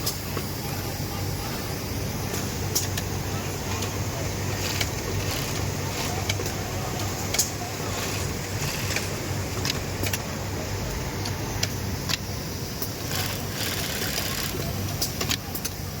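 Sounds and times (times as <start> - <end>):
sewing machine running: 3.1 - 10.2, 13.0 - 14.9.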